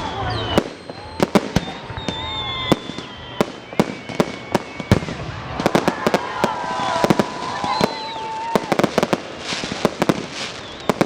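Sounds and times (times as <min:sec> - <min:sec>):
fireworks bangs: 0:00.0 - 0:11.0
fireworks whistling: 0:00.0 - 0:11.0.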